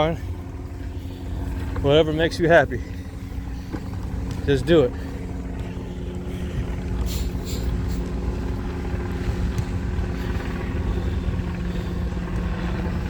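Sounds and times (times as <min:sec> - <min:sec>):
helicopter hum: 0:00.0 - 0:13.0.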